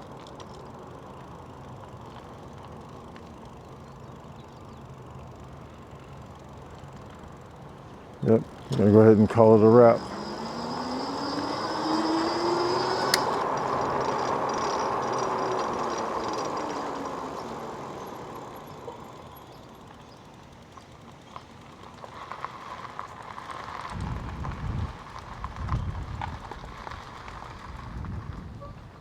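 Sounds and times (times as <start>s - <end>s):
vehicle motor and road noise: 0.0s - 29.0s
whine rising and falling: 8.2s - 20.0s
click: 12.8s - 17.0s.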